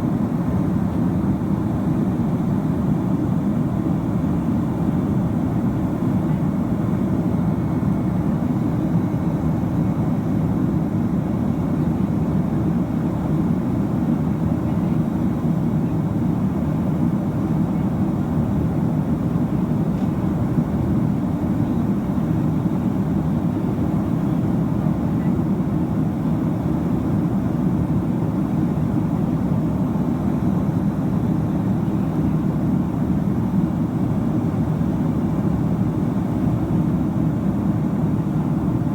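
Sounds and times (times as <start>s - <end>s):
jet engines: 0.0s - 38.9s.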